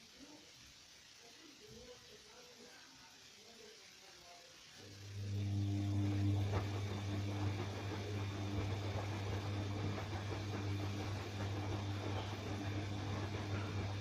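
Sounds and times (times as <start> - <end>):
washing machine humming: 4.8 - 14.0.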